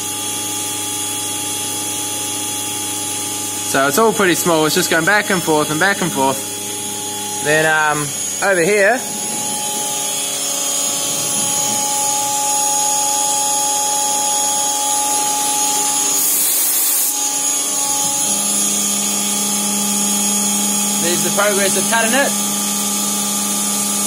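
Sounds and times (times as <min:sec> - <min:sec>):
milling machine whine: 0:00.0 - 0:24.0.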